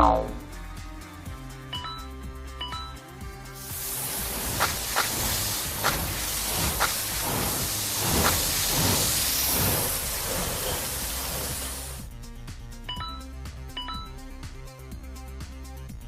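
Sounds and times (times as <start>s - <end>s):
loud hissing spray: 3.6s - 12.1s.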